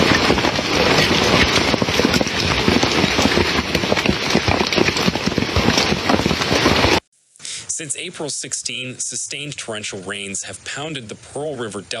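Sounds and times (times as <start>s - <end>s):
heavy rain rushing: 0.0s - 7.0s.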